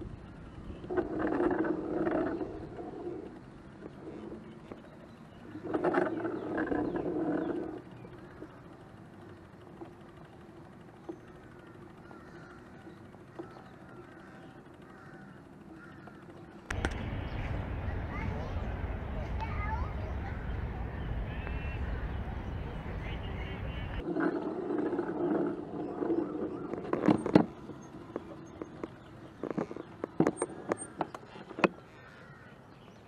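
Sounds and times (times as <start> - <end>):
faint bird chirping: 2.1 - 24.0
loud bird calls: 11.3 - 24.0, 28.4 - 33.0.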